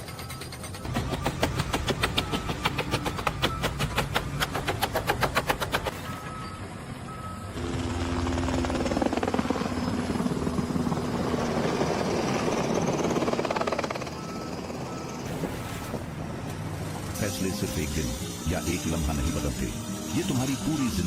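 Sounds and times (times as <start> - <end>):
engine running with fast pulsing: 0.0 - 6.4, 7.1 - 15.5.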